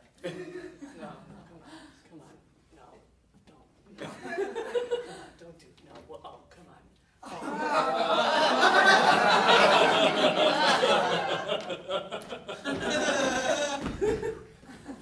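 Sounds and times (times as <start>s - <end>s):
audience laughing: 7.2s - 15.0s.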